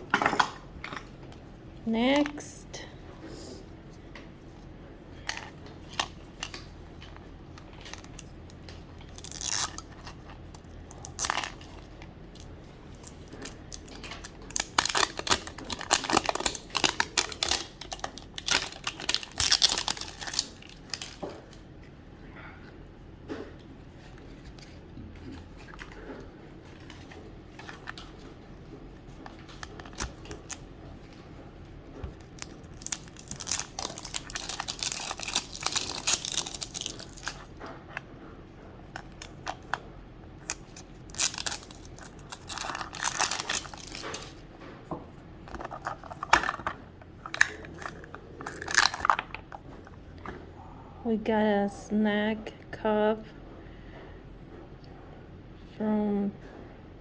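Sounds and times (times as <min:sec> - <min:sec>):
plastic wrapping crinkling and tearing: 0:09.0 - 0:21.6, 0:29.1 - 0:30.6, 0:32.1 - 0:37.6, 0:40.4 - 0:44.4, 0:45.5 - 0:49.6.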